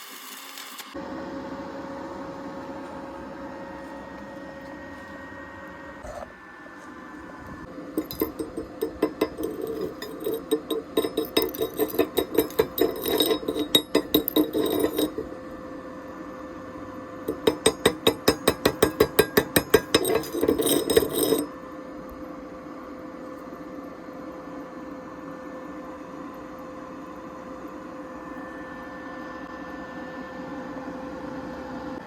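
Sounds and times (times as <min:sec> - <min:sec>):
steady electrical hum: 0:01.0 - 0:32.0
hammer striking metal: 0:08.0 - 0:15.3, 0:17.3 - 0:21.5.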